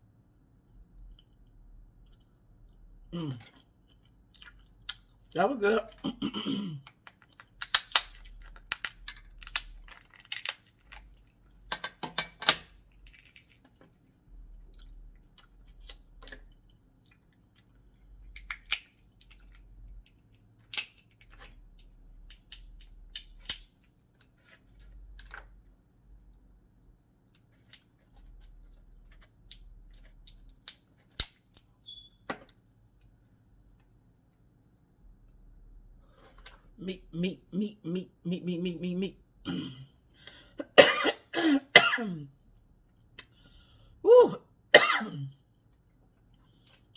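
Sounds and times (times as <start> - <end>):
chewing: 3.4 - 5.3, 13.0 - 20.4.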